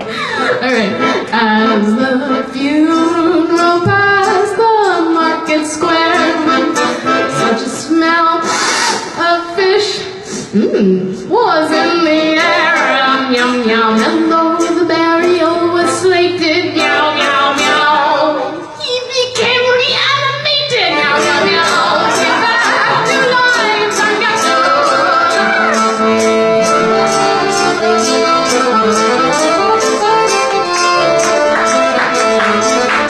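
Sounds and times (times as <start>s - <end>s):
accordion music: 0.0s - 9.6s, 11.3s - 33.0s
woman singing: 0.5s - 8.5s, 9.1s - 18.6s, 19.4s - 25.7s.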